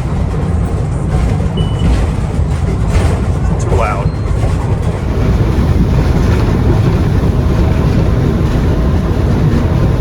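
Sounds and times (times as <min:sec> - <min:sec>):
outboard motors droning: 0:00.0 - 0:10.0
wind buffeting microphone: 0:00.0 - 0:10.0.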